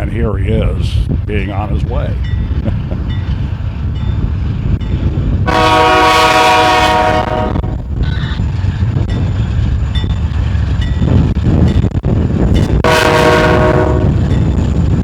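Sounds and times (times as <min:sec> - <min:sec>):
diesel freight train rumbling: 0:00.0 - 0:15.0
locomotive horn chord: 0:05.5 - 0:07.8, 0:12.8 - 0:14.3.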